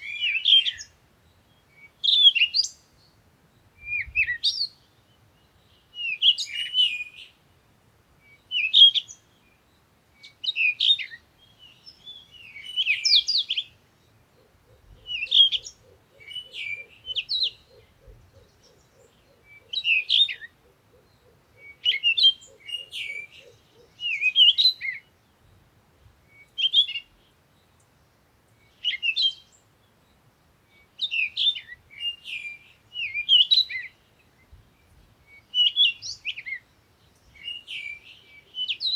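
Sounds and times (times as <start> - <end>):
songbird warbling: 0.0 - 7.4, 10.2 - 25.2, 30.7 - 38.9.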